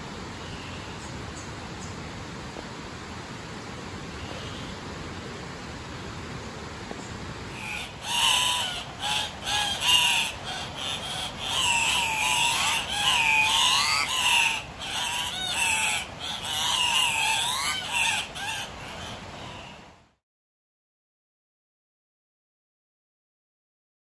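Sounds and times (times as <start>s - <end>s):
birds harsh squawks: 7.5s - 19.8s.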